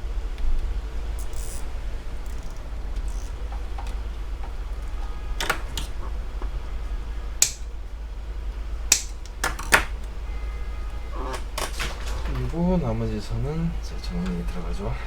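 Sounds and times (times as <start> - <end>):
steady low hum: 0.0 - 15.0
cable ties clicking: 0.4 - 6.6, 7.4 - 7.8, 8.9 - 10.2.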